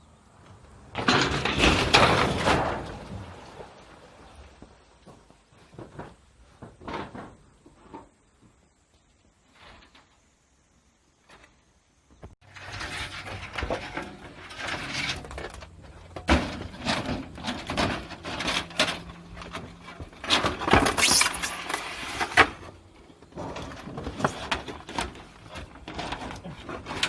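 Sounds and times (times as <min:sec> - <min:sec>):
scraping and rattling of repair work: 0:00.9 - 0:03.4, 0:12.3 - 0:27.0.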